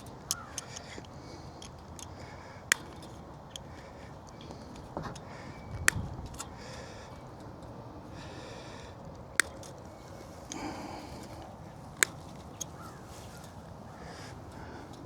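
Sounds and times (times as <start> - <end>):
faint clicks: 0.0 - 15.0
wire cutters snapping fence wire: 0.0 - 15.0
breathy sniffing: 6.5 - 7.4, 8.0 - 15.0.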